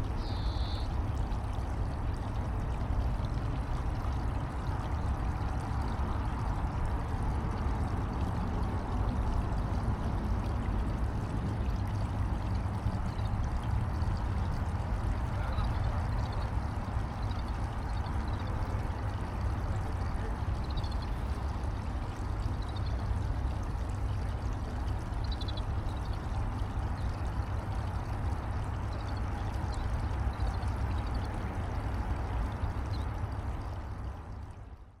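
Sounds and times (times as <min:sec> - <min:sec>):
running water rushing: 0:00.0 - 0:34.9
faint high bird chirps: 0:00.2 - 0:00.9.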